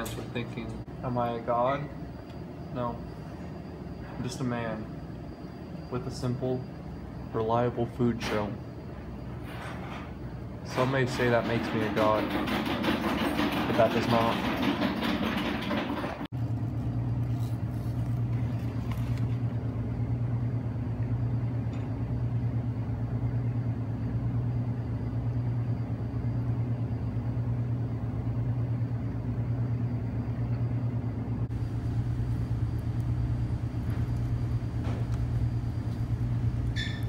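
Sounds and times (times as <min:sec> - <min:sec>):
vehicle engine humming: 0:31.1 - 0:37.0.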